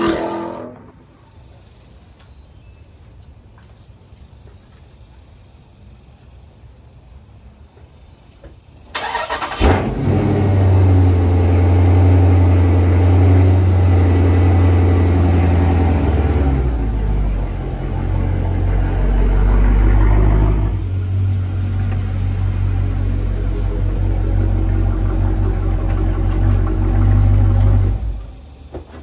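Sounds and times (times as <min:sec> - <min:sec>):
car engine idling: 0:09.0 - 0:29.0.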